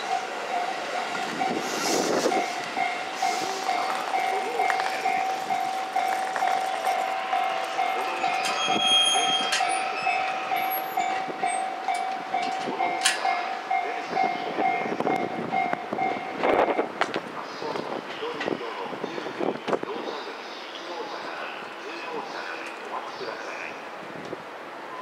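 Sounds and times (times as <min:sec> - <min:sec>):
level crossing alarm bell: 0:00.0 - 0:01.7, 0:02.3 - 0:16.8
electric train running past: 0:00.0 - 0:19.0.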